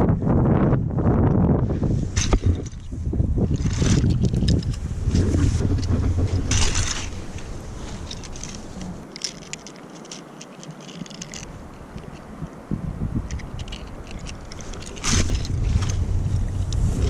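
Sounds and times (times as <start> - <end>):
wind buffeting microphone: 0.0 - 9.8, 10.7 - 17.0
small clicks and scrapes: 2.2 - 2.9, 3.5 - 12.6, 13.3 - 16.9.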